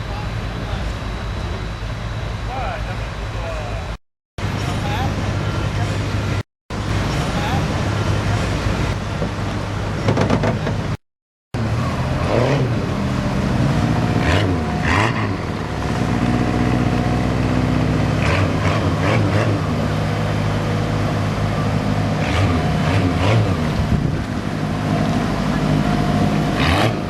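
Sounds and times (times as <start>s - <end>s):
heavy diesel engine under load: 0.0s - 11.0s, 11.6s - 27.0s.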